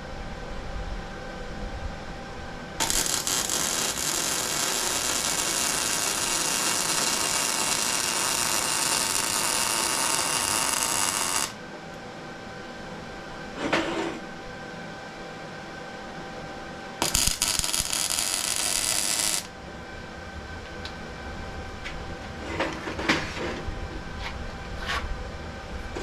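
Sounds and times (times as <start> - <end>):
plasma cutter hissing: 2.8 - 11.6.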